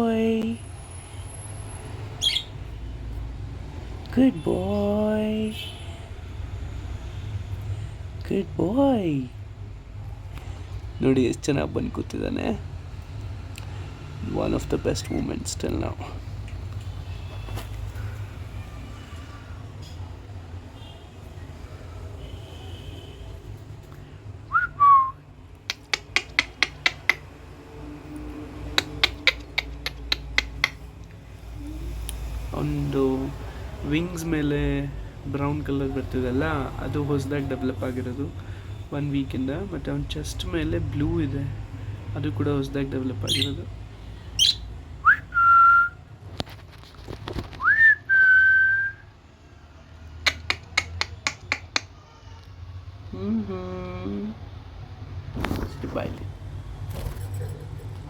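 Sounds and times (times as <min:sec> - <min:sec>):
person whistling: 0:24.5 - 0:25.2, 0:45.1 - 0:46.0, 0:47.6 - 0:49.0.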